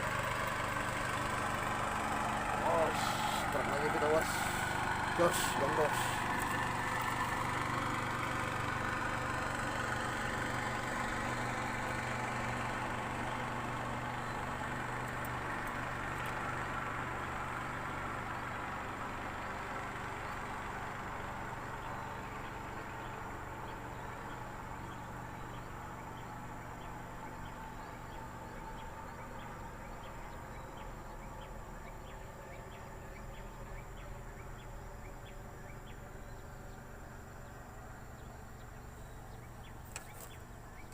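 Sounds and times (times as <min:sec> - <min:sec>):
motor humming: 0:00.0 - 0:16.4.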